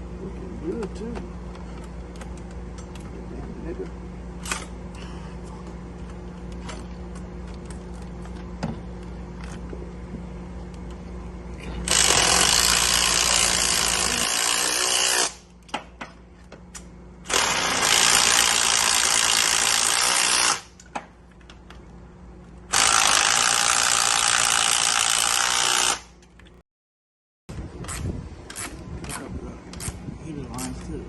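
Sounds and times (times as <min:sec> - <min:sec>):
power tool bursts: 0:11.9 - 0:15.4, 0:17.3 - 0:20.7, 0:22.7 - 0:26.2.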